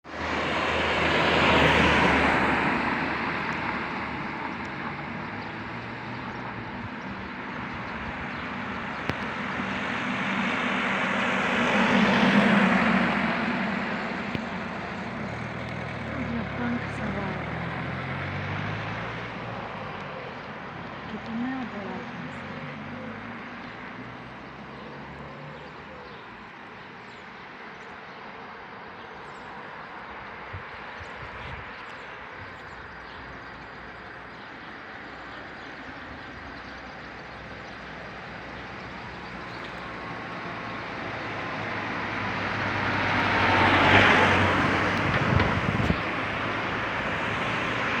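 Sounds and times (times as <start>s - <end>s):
outdoor background noise: 0.0s - 48.0s
vehicle passing: 0.1s - 6.3s, 8.6s - 26.8s, 29.8s - 48.0s.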